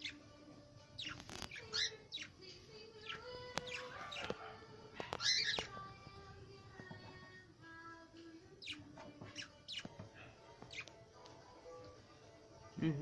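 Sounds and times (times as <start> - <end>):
cockatiels chirping: 0.0 - 0.2, 1.0 - 2.4, 3.0 - 5.9, 8.6 - 11.0.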